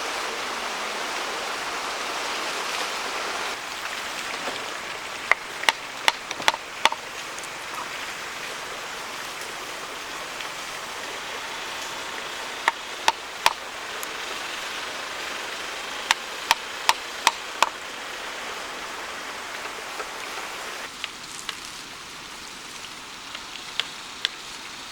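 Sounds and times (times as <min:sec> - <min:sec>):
steady background hiss: 0:00.0 - 0:24.9
hand tool knocking wood: 0:05.3 - 0:07.0, 0:12.6 - 0:13.6, 0:16.1 - 0:17.8.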